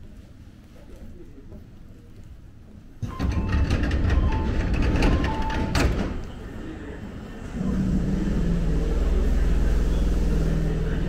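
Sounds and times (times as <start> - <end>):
electric train humming: 3.0 - 11.0.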